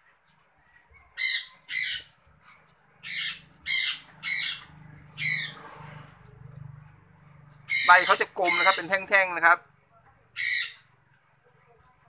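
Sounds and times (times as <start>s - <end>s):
bird crying loudly: 1.2s - 2.1s, 3.0s - 5.6s, 7.7s - 9.0s, 10.4s - 10.8s.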